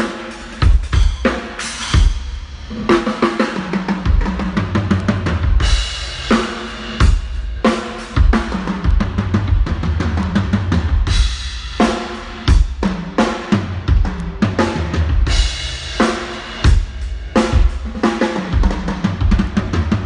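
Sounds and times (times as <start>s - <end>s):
cymbals: 0.0s - 20.0s
bass drum kicks: 8.2s - 11.4s.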